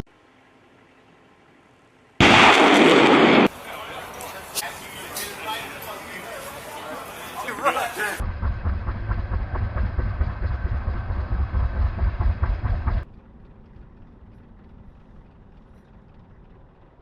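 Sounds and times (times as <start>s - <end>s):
helicopter deep rumble: 8.2s - 17.0s.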